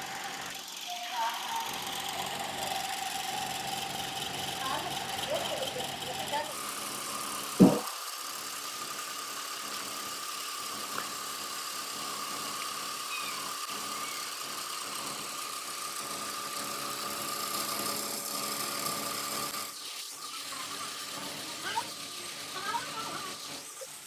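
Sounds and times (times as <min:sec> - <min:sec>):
machine humming with high whine: 0:09.7 - 0:16.9.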